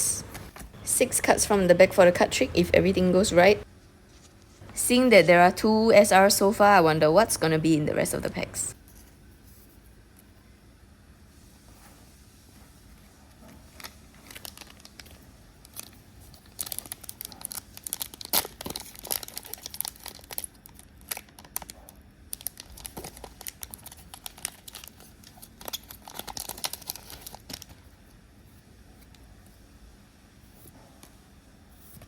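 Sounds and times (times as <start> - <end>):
foil wrapper crinkling: 13.5 - 28.0.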